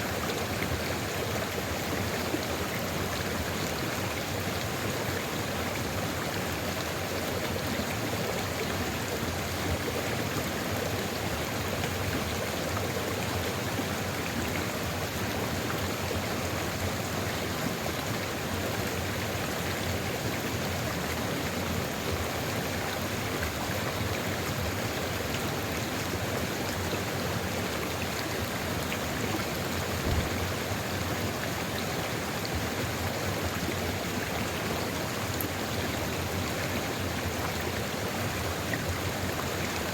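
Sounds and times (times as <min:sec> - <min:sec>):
river water rushing: 0:00.0 - 0:39.9
low thump: 0:30.0 - 0:30.5.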